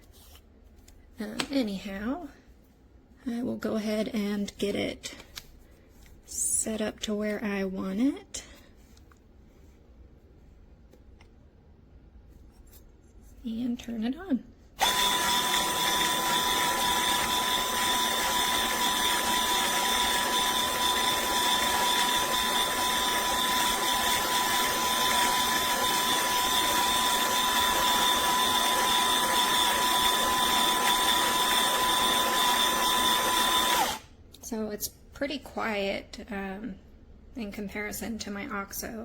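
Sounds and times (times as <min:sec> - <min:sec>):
coffee grinder grinding beans: 0:14.8 - 0:34.0.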